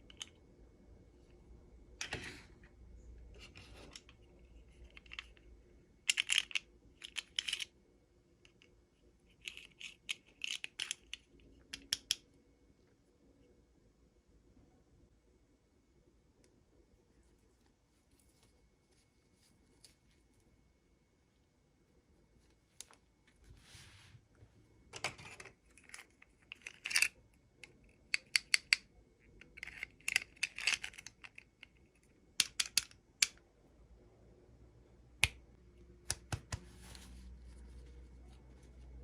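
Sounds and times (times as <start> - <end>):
plastic pieces clicking and tapping: 6.1 - 7.7, 9.3 - 12.3, 25.2 - 33.4.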